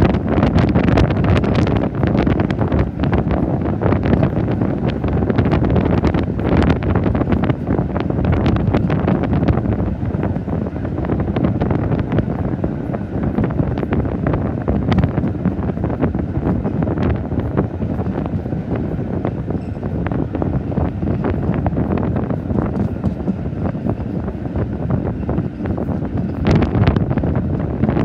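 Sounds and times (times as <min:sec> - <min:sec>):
railway carriage running on track: 0:00.0 - 0:28.0
wind buffeting microphone: 0:00.0 - 0:28.0.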